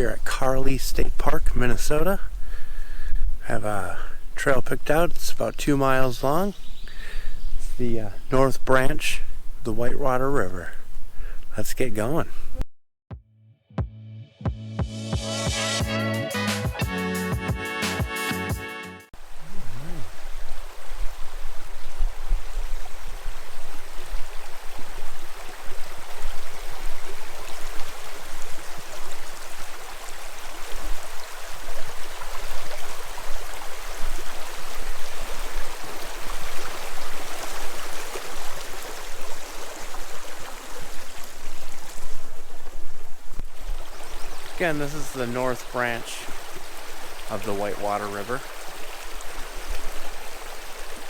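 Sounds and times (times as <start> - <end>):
river water rushing: 19.2 - 42.8, 43.5 - 51.0.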